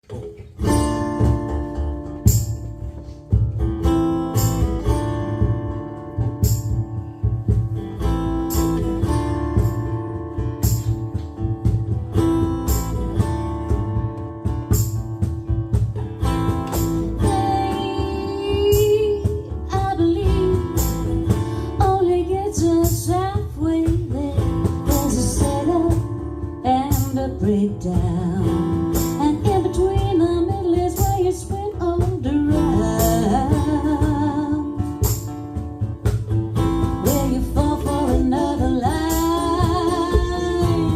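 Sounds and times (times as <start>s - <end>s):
strummed acoustic guitar: 0.0s - 40.9s
woman singing: 17.0s - 35.2s, 36.8s - 40.9s.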